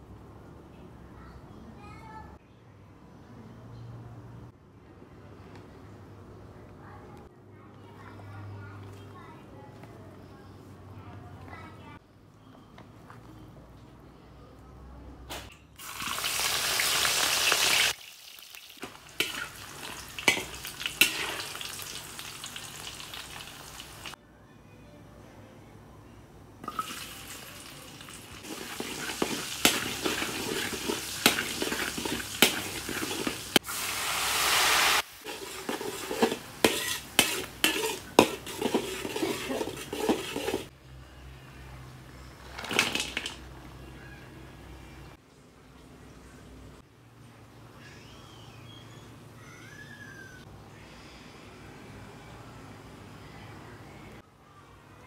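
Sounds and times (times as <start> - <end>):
oil sizzling in a wok: 15.8 - 24.2, 26.6 - 40.7
metal spatula scraping a pan: 18.8 - 21.8, 28.4 - 33.6, 35.2 - 40.7.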